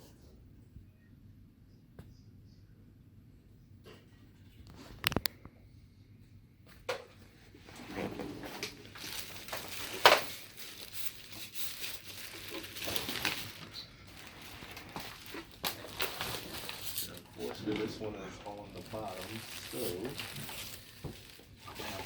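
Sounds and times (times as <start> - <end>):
rustling crinkling handling noise: 4.6 - 5.4, 7.4 - 22.0.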